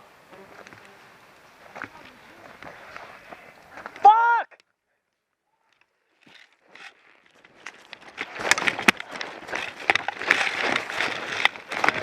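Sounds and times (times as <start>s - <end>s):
sharp cracks and rustling: 5.7s - 12.0s
running footsteps: 6.3s - 12.0s.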